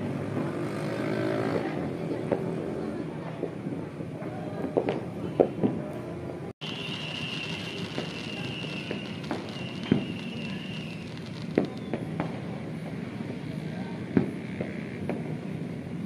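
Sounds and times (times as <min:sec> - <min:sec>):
steady background noise: 0:00.0 - 0:16.0
fireworks bangs: 0:03.2 - 0:15.7.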